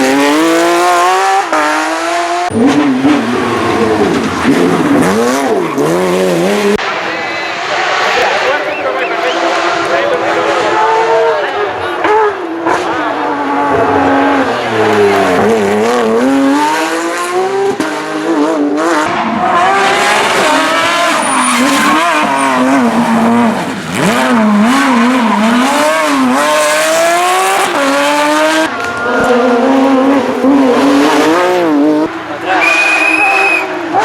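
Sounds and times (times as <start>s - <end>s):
car engine revving through gear changes: 12.0s - 32.2s.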